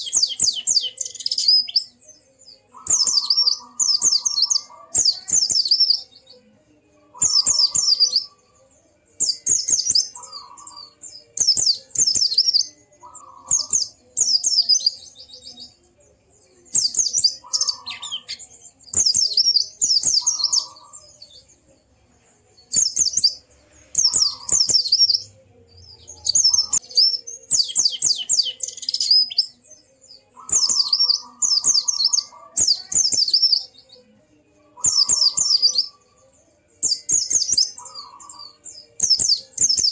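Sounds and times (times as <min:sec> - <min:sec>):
bird twittering: 0:00.0 - 0:06.0, 0:07.2 - 0:08.3, 0:09.2 - 0:15.4, 0:16.8 - 0:21.1, 0:22.7 - 0:25.3, 0:26.0 - 0:29.5, 0:30.4 - 0:33.8, 0:34.8 - 0:36.0, 0:36.9 - 0:39.9.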